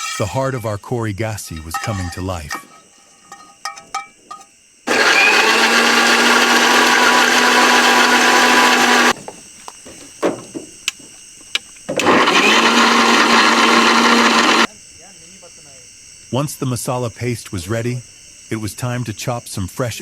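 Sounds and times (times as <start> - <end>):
mixer grinder grinding: 1.5 - 3.4, 4.9 - 9.2, 11.9 - 14.7
knocks: 9.1 - 12.1.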